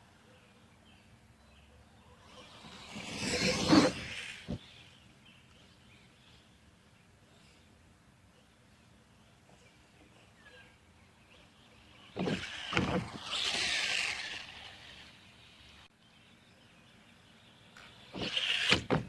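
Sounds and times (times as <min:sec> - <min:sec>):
toy truck motor and tyres: 0:02.2 - 0:04.7, 0:11.8 - 0:15.9, 0:18.0 - 0:19.0.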